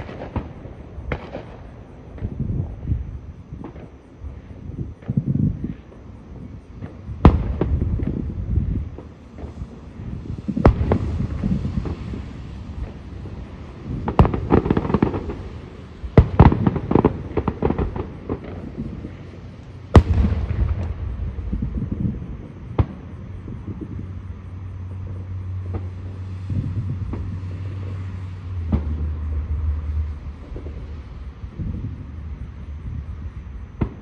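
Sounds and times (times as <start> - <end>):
fireworks crackling and banging: 0.0 - 34.0
steady low hum: 0.0 - 34.0
loud firework boom: 7.2 - 13.0, 20.0 - 24.2.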